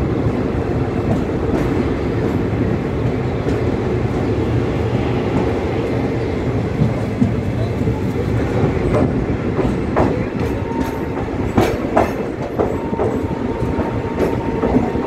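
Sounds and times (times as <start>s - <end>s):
train coach rumbling: 0.0s - 15.0s
wheels clacking over rail joints: 6.8s - 15.0s.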